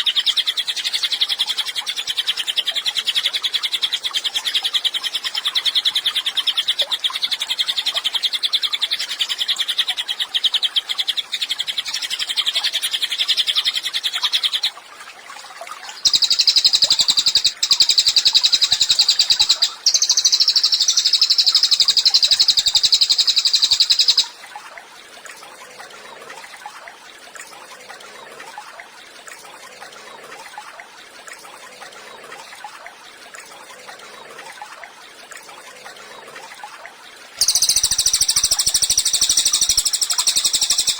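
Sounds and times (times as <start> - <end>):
busy bird twittering: 0.0 - 14.7, 16.0 - 24.4, 37.4 - 40.9
songbird chattering song: 0.0 - 14.7, 16.0 - 24.4, 37.4 - 40.9.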